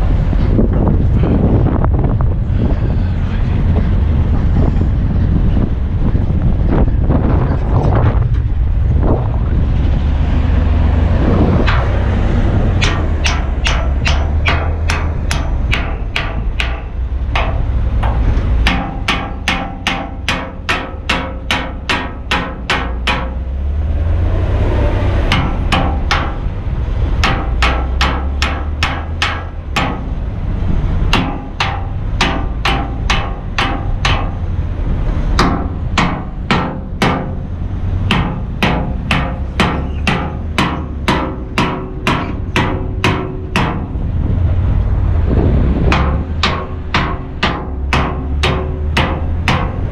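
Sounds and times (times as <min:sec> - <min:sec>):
truck diesel idling: 0:08.4 - 0:49.9
hammering on steel: 0:11.6 - 0:23.6, 0:25.2 - 0:30.2, 0:30.8 - 0:44.1, 0:45.9 - 0:49.9.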